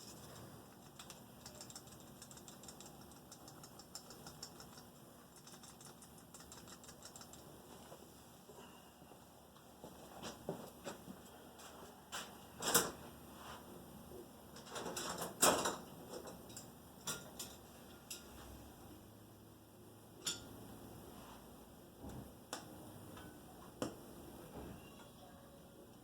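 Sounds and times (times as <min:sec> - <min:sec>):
tools clinking on a workbench: 0:20.2 - 0:20.5.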